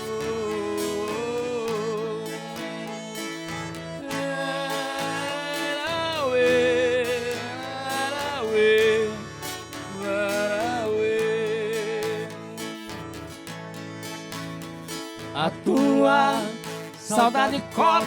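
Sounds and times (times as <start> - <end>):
plucked strings: 0.0 - 18.0
wavering held melody line: 0.0 - 18.0.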